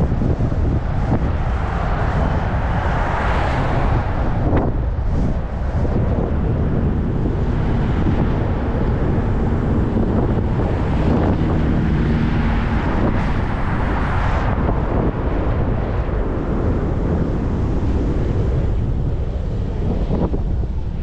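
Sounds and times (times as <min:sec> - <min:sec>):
road and traffic noise: 0:00.0 - 0:21.0
wind rumble on microphone: 0:00.0 - 0:21.0.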